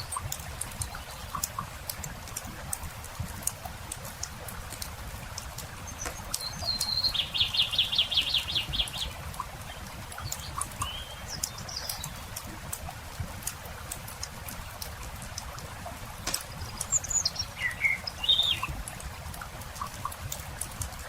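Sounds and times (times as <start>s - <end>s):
campfire crackling and popping: 0.0s - 21.0s
songbird singing and trilling: 5.8s - 12.4s, 16.3s - 18.8s.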